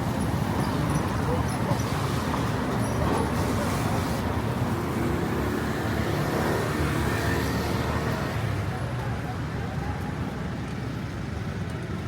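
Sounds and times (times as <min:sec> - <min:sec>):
cars passing on street: 0:00.0 - 0:12.0.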